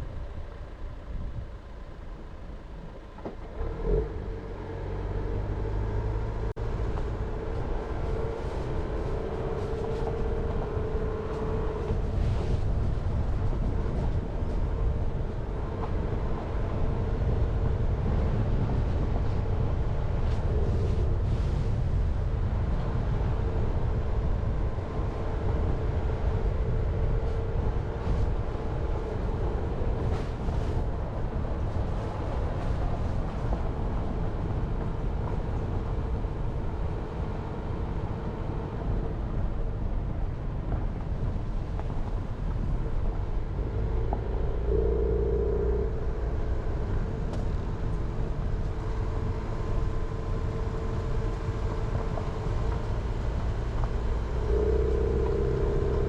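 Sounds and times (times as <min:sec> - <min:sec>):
car engine and tyre rumble: 0:00.0 - 0:56.0
short louder hum: 0:43.7 - 0:47.2, 0:54.2 - 0:56.0.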